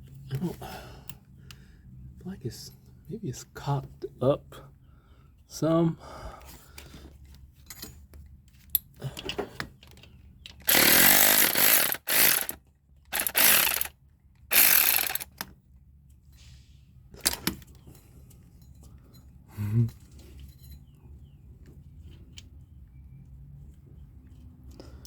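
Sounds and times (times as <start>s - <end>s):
power tool bursts: 10.6s - 13.9s, 14.5s - 15.4s.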